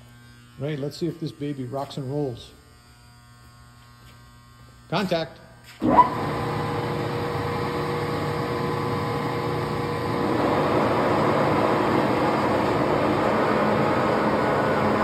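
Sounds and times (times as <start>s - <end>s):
lathe motor and gearing running: 5.8s - 15.0s.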